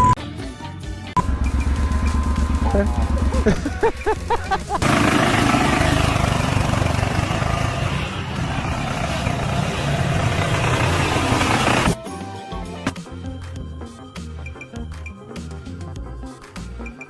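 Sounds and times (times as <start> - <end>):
engine running: 1.2 - 12.0
loud rushing noise: 1.2 - 12.0.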